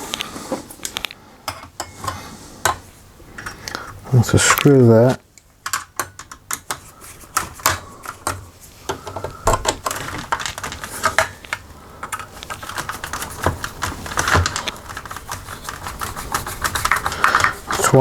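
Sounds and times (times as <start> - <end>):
screw clicking and scraping: 5.6 - 18.0.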